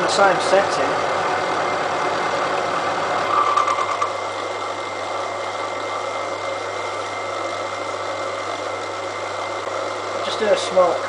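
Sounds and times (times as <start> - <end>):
milling machine cutting steel: 3.1 - 6.0.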